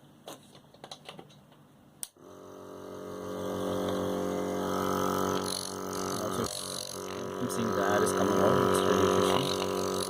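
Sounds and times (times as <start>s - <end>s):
compressor motor humming: 2.1s - 10.0s.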